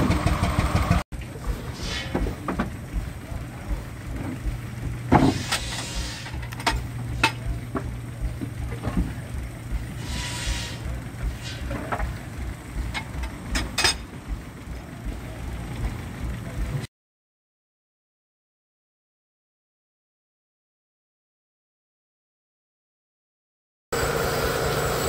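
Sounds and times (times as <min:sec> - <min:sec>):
steam traction engine running: 0:00.0 - 0:16.9, 0:24.0 - 0:25.0
steam hissing: 0:01.4 - 0:03.3, 0:05.1 - 0:06.5, 0:09.8 - 0:11.9
metallic knocks: 0:12.8 - 0:14.2.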